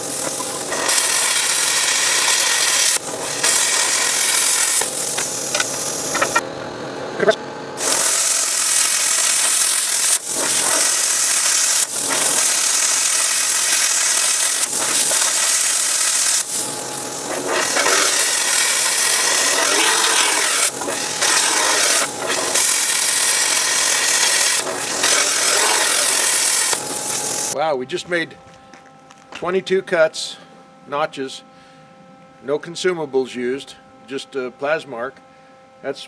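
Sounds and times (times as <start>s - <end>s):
plasma cutter hissing: 0.0s - 6.4s, 7.8s - 27.6s.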